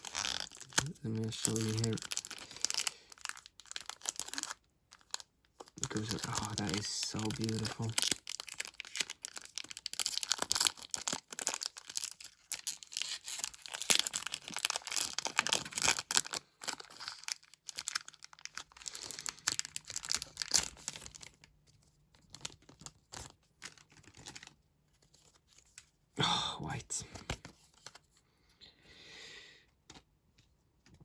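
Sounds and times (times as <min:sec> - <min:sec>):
foil wrapper tearing and crinkling: 0:00.0 - 0:21.5, 0:22.2 - 0:24.6.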